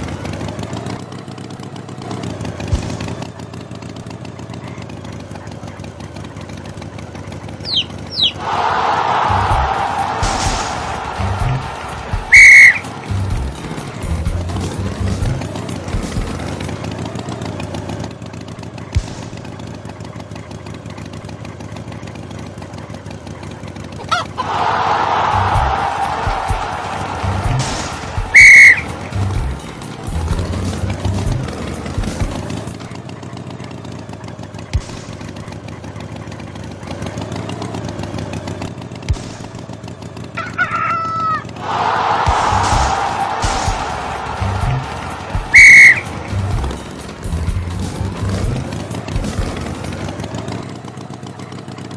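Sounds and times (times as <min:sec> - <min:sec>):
small engine puttering: 0:00.0 - 0:51.9
chicken calling: 0:07.7 - 0:08.4, 0:11.0 - 0:13.0, 0:24.0 - 0:24.7, 0:28.1 - 0:29.6, 0:44.6 - 0:46.8
steady low rumble: 0:08.7 - 0:16.4, 0:25.3 - 0:28.4, 0:29.0 - 0:32.6, 0:41.6 - 0:49.9.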